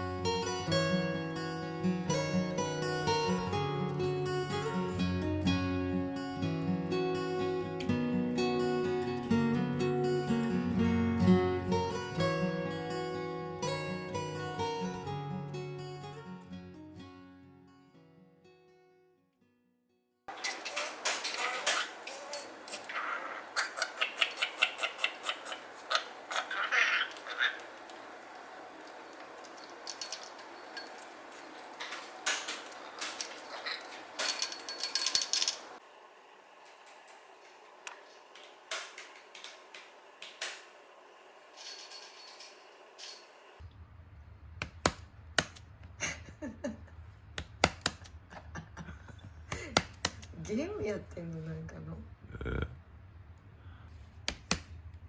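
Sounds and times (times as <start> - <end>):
parakeet chattering clicks: 20.4 - 29.4
sharp irregular clicks and taps: 54.3 - 54.7.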